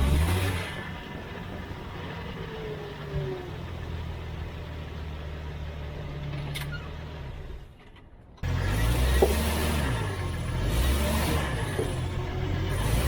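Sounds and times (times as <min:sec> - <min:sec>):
car engine humming: 0:00.0 - 0:13.0
dull thump: 0:09.1 - 0:09.5.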